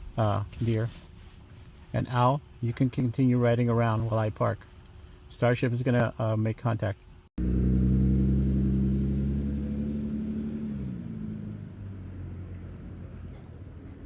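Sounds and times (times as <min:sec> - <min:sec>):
vehicle passing by: 0:07.4 - 0:14.0.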